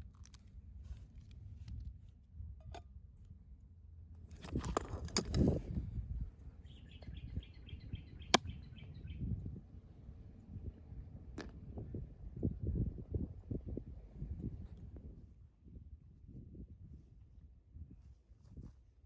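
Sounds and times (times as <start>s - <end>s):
close rustling and knocks: 4.3s - 5.7s
bird chirping: 6.6s - 9.3s.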